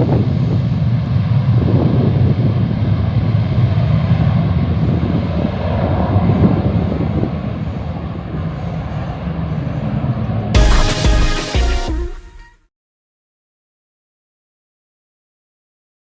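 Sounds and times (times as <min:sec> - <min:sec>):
airplane engine running: 0:00.0 - 0:12.4.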